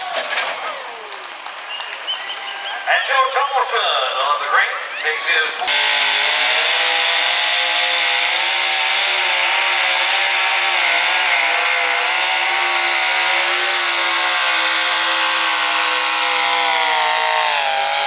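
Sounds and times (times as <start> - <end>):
truck engine revving at full throttle: 5.7 - 18.0.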